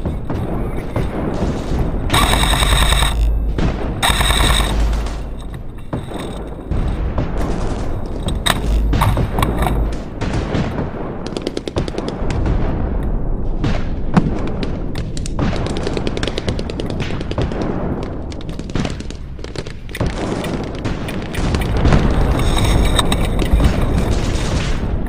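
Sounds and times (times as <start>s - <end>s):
airsoft guns firing full-auto: 0.0s - 5.4s
low rumble: 0.0s - 11.0s.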